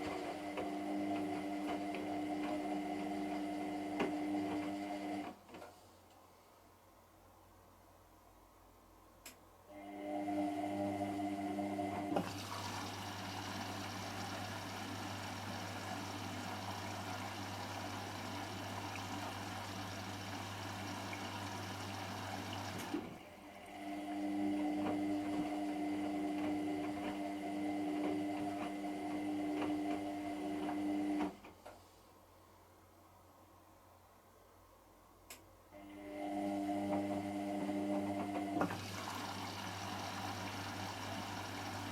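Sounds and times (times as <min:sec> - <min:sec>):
washing machine motor hum: 0:00.0 - 0:05.3, 0:09.7 - 0:31.3, 0:35.8 - 0:41.9
water rushing in: 0:12.3 - 0:23.2.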